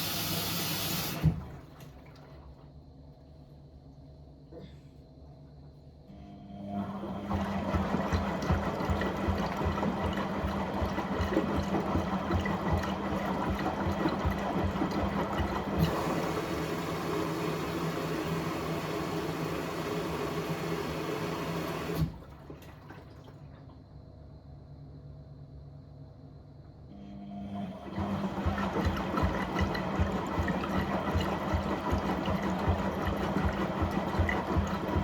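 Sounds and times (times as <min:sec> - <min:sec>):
water churning and splashing: 0:07.4 - 0:16.9, 0:22.0 - 0:23.6, 0:28.0 - 0:35.0
motor hum: 0:26.9 - 0:35.0.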